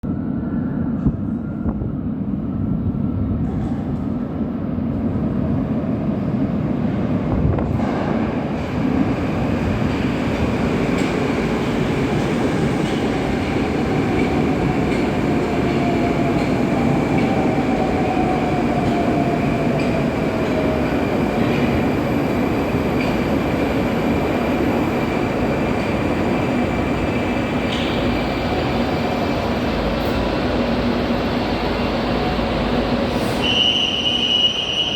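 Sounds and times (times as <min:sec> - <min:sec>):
train rumble and wheel noise: 0:00.0 - 0:34.9.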